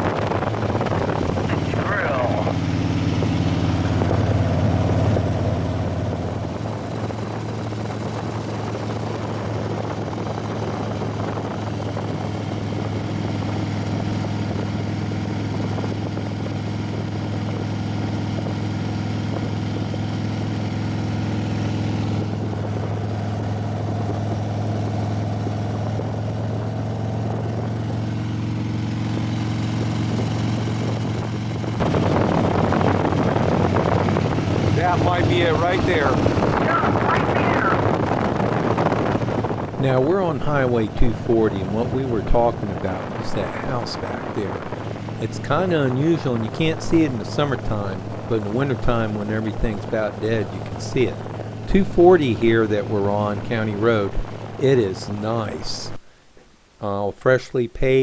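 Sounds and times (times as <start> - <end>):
loud rushing noise: 0.0 - 7.2, 31.7 - 56.0
motorcycle engine cruising: 0.0 - 56.1.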